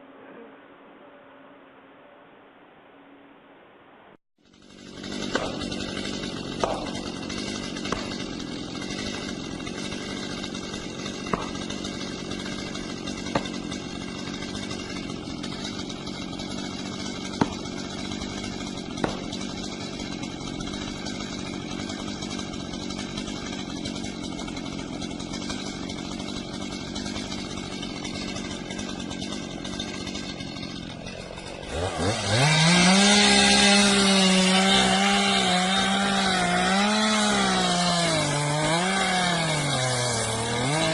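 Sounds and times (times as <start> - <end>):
chainsaw running: 4.4 - 40.9
sharp knocks: 5.2 - 5.8, 6.5 - 8.3, 11.1 - 11.8, 13.2 - 13.7, 17.4 - 17.8, 19.0 - 19.5.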